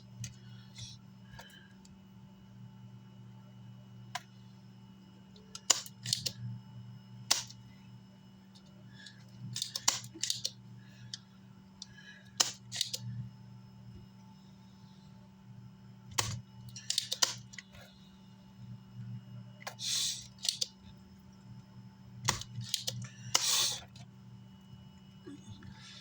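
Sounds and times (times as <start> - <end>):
steady low hum: 0.0 - 26.0
tools clicking and tapping: 5.4 - 6.4, 9.5 - 10.6, 16.1 - 17.7.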